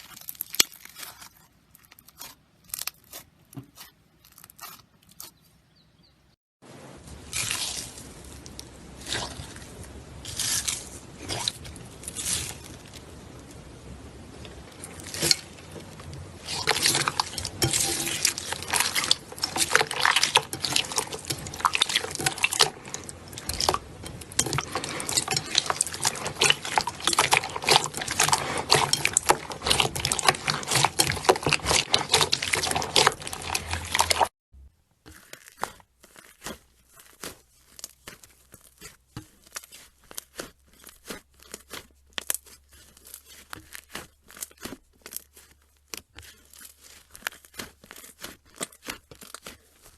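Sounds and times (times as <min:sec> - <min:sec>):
slime squished by hand: 0:14.8 - 0:34.3, 0:35.0 - 0:49.9.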